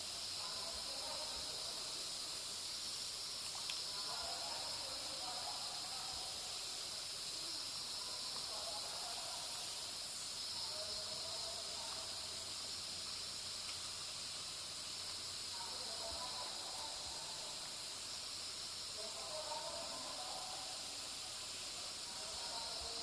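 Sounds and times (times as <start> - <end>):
high-pitched insect drone: 0.0 - 23.0.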